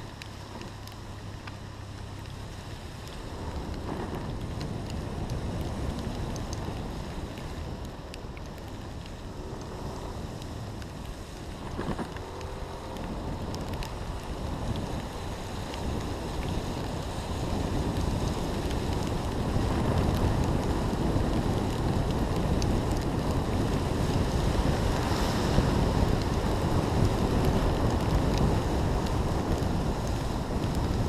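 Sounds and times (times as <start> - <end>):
light ticks: 0.1 - 2.4, 3.0 - 17.0, 17.9 - 24.3
wind buffeting microphone: 2.8 - 31.0.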